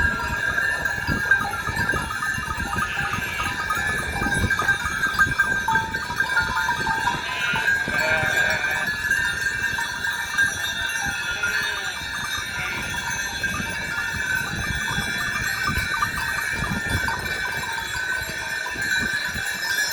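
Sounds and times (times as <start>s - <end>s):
sheep bleating: 2.7s - 3.7s, 7.2s - 9.0s.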